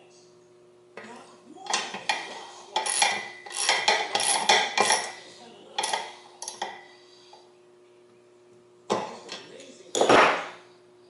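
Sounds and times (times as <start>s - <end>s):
metal tools clinking: 1.7s - 5.2s, 5.8s - 6.8s.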